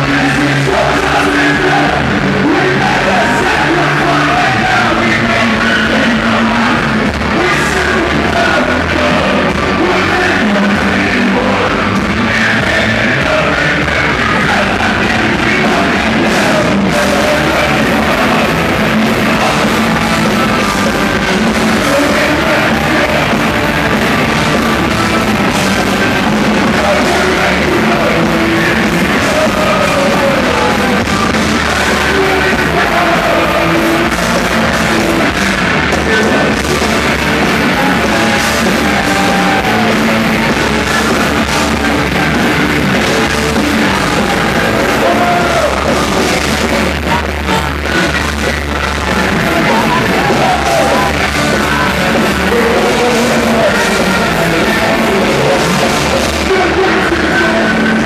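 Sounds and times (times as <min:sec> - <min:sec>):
person singing: 0:00.0 - 0:58.0
rock band playing live: 0:00.0 - 0:58.0.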